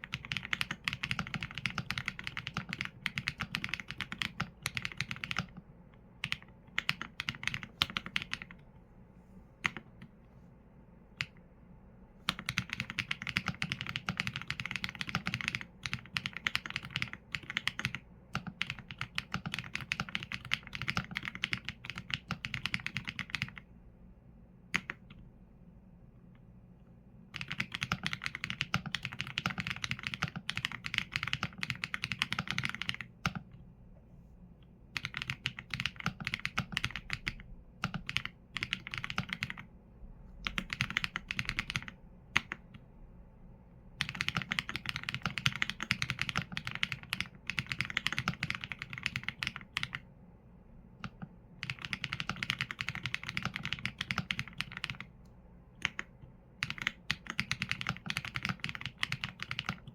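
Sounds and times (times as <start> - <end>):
mechanical keyboard typing: 0.0 - 5.6, 6.2 - 8.6, 9.6 - 9.9, 12.3 - 23.6, 27.4 - 33.5, 34.9 - 39.7, 40.4 - 42.7, 44.0 - 50.0, 51.0 - 55.1, 55.8 - 59.9.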